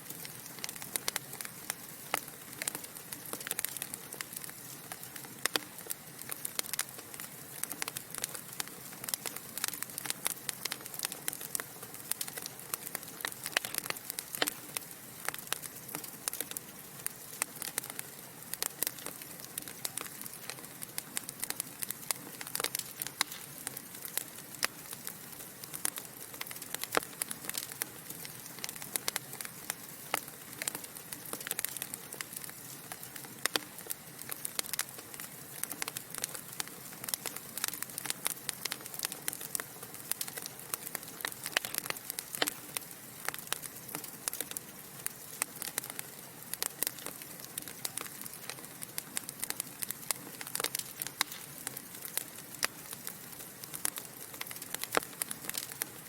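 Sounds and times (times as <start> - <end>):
logs crackling and popping: 0.0 - 56.0
fire hissing: 49.2 - 56.0.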